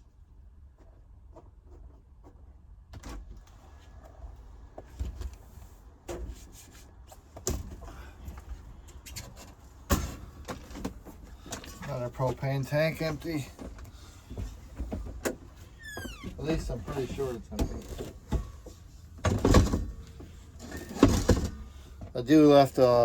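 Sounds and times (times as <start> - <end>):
handling knocks and thumps: 7.2 - 22.2.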